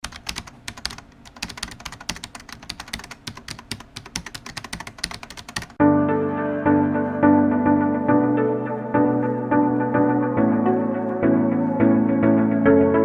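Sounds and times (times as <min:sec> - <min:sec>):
rapid keyboard typing: 0:00.0 - 0:05.8
piano-like keyboard music: 0:05.3 - 0:13.0.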